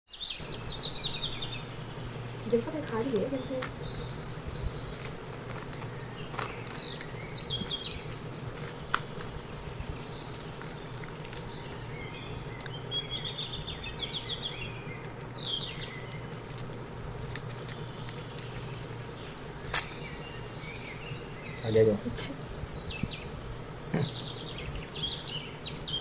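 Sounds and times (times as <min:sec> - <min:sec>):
birds chirping: 0:00.1 - 0:26.0
steady low hum: 0:00.4 - 0:26.0
plastic candy wrappers crinkling: 0:04.8 - 0:12.9, 0:15.6 - 0:20.2.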